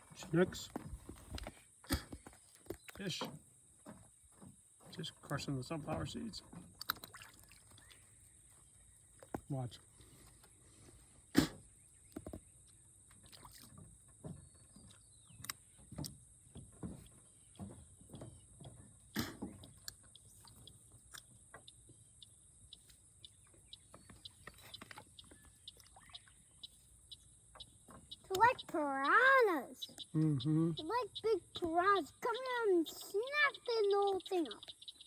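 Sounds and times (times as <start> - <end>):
small splashes and pops: 6.5 - 8.3, 11.4 - 14.0, 19.2 - 21.8, 24.2 - 26.7.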